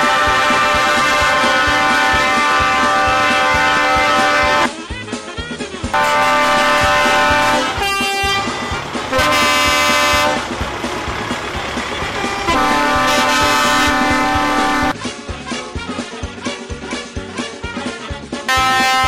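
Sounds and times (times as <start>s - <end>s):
truck horns honking: 0.0s - 4.7s, 5.9s - 15.0s, 17.5s - 19.0s.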